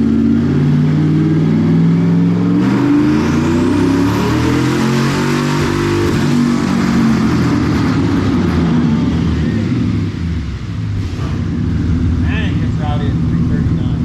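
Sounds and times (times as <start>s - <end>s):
loud rough engine running: 6.1s - 14.0s.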